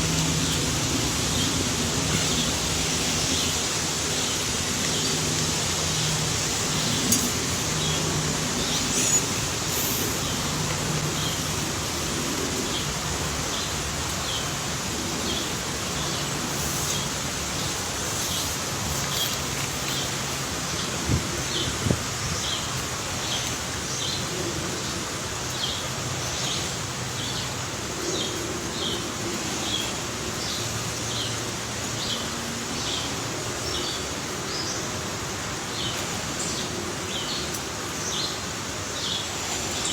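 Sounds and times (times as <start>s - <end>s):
outdoor hiss: 0.0s - 39.9s
bird chirping: 5.9s - 10.5s.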